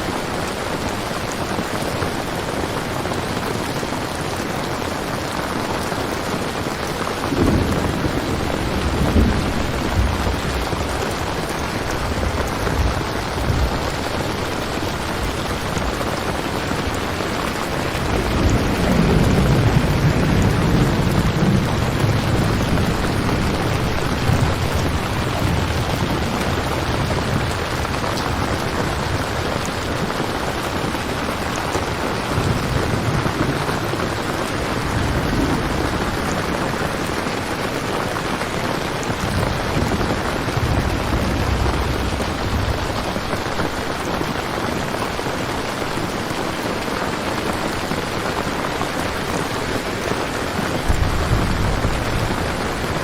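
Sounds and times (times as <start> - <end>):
heavy rain: 0.0 - 53.0
low thunder rumbling: 6.8 - 45.2, 49.1 - 53.0.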